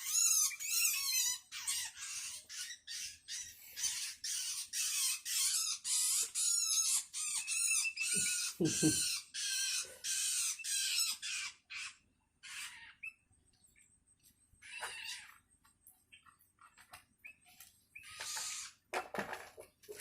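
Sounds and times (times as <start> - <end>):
bird chicks harsh begging calls: 0.0 - 13.3, 18.0 - 18.8.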